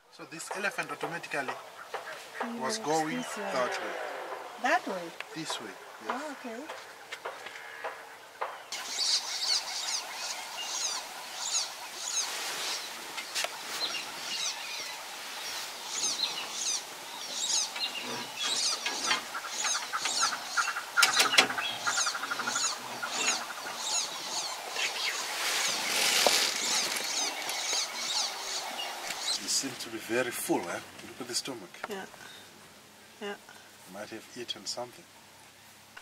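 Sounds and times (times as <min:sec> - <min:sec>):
birds chirping: 0:00.0 - 0:36.0
bird rattling call: 0:15.5 - 0:29.4.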